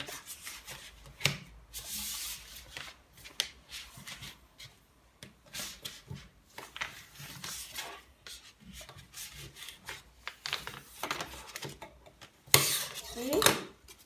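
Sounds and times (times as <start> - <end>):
paper being folded and creased: 0.0 - 4.8, 5.5 - 12.3.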